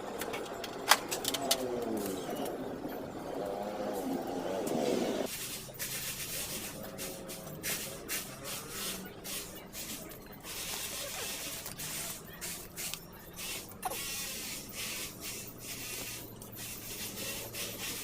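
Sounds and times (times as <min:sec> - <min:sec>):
hand sanding metal: 0:05.3 - 0:18.0.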